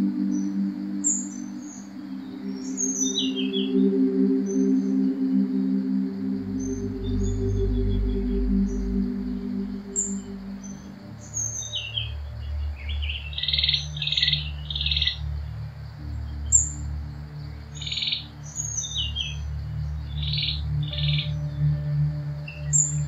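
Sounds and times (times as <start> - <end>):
birds chirping and whistling: 0.0 - 4.9, 6.6 - 15.2, 17.7 - 21.6
low steady drone: 0.0 - 23.0.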